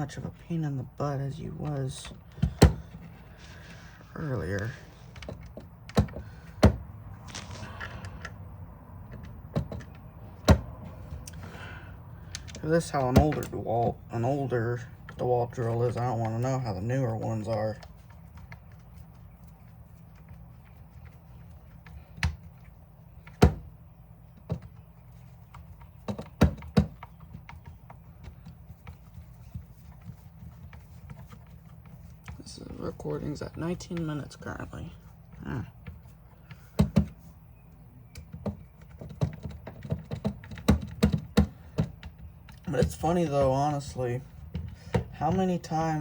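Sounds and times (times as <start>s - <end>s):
plastic parts and tools knocking: 2.0s - 3.2s, 5.1s - 6.8s, 9.1s - 11.3s, 24.4s - 32.0s, 35.8s - 37.2s, 38.2s - 45.7s.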